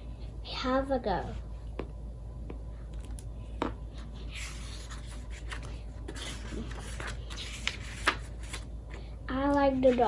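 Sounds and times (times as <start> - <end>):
paper rustling: 4.0 - 8.7, 9.6 - 10.0.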